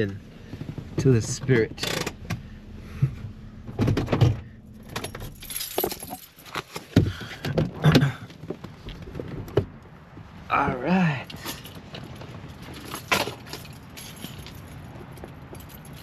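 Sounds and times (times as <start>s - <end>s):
keys jangling: 4.7s - 6.7s, 11.4s - 16.0s.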